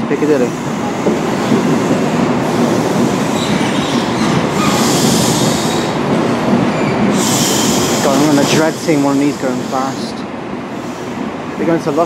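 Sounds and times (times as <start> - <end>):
train wheels rumbling on rail: 0.0 - 12.0
high hiss: 7.1 - 10.2.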